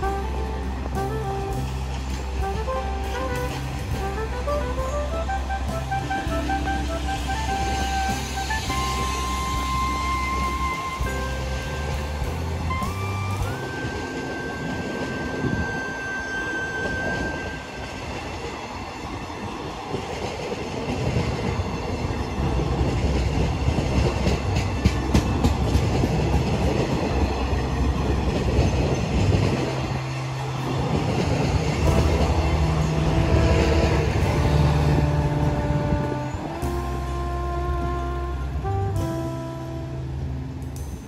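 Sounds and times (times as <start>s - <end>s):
rail joints clicking: 0.0s - 37.1s
wheels rumbling on rail: 0.0s - 41.0s
low engine hum: 22.4s - 41.0s.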